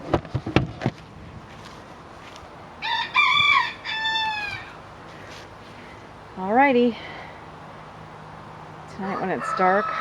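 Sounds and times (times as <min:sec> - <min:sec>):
rooster crowing: 0:02.8 - 0:04.8, 0:09.0 - 0:10.0.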